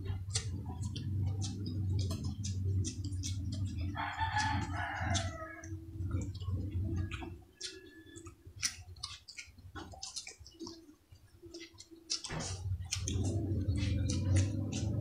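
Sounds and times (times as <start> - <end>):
low hum: 0.0 - 8.4, 12.3 - 15.0
chewing with lip smacks: 0.0 - 15.0.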